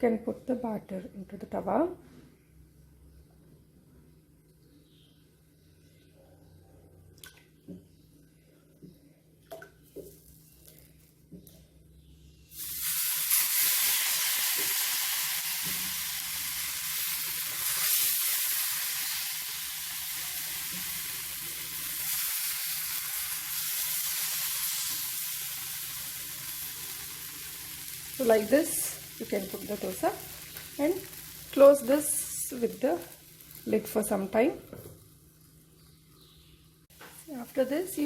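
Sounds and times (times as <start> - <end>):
batter sizzling on hot griddle: 12.5 - 35.8.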